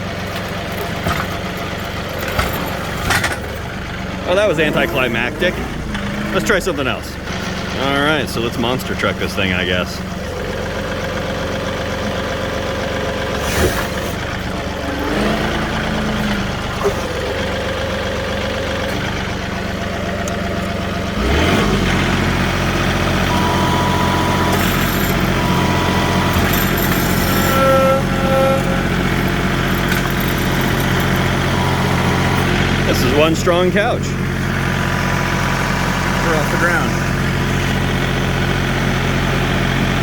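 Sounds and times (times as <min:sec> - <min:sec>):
tractor diesel engine running: 0:00.0 - 0:40.0
steady whining tones: 0:01.8 - 0:10.0, 0:21.9 - 0:34.0.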